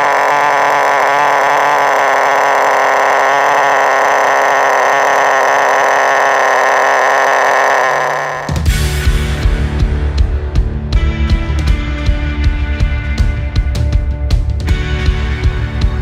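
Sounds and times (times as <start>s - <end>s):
model car engine running: 0.0s - 8.6s.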